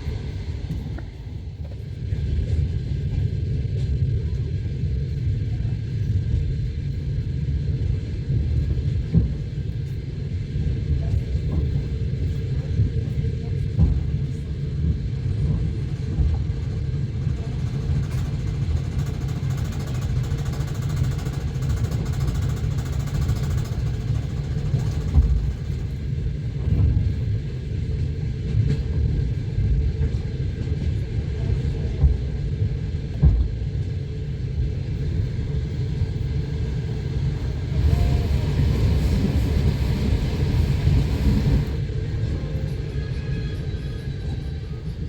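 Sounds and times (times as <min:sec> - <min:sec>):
train wheels rumbling on rails: 0:00.0 - 0:45.0.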